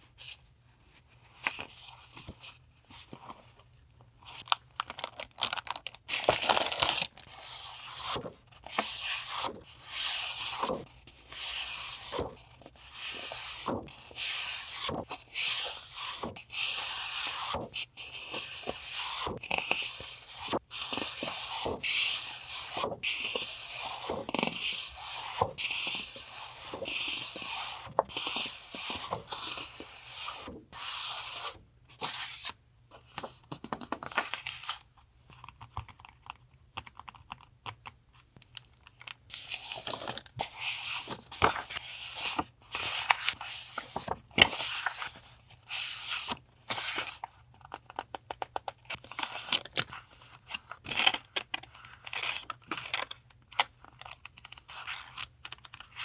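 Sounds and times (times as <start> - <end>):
packaging rustling and crinkling: 4.4 - 7.4.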